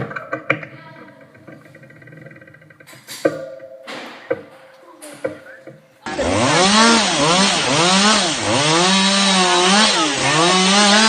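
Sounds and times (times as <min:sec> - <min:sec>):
chainsaw engine revving: 0:06.0 - 0:11.0.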